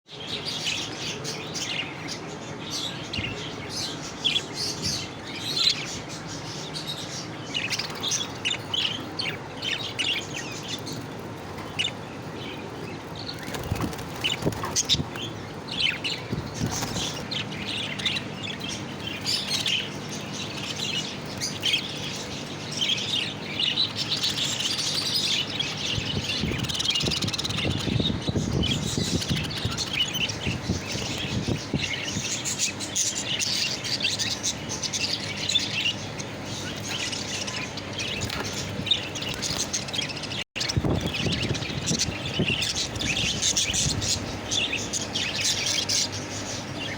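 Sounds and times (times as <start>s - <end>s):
birds chirping and chattering: 0.1s - 46.9s.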